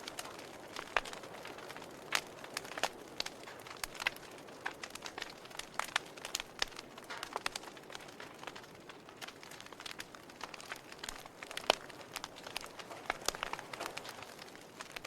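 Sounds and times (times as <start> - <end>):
campfire crackling and popping: 0.0 - 15.0
faint steady hiss: 0.0 - 15.0.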